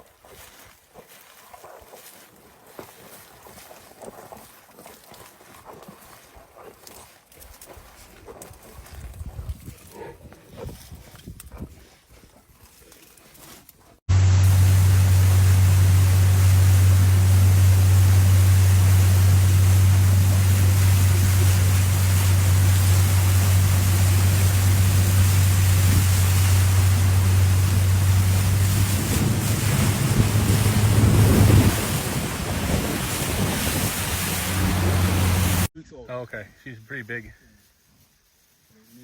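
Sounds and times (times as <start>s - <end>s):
loud wind: 14.1s - 35.7s
low engine hum: 14.1s - 35.7s
rushing water: 14.1s - 35.7s.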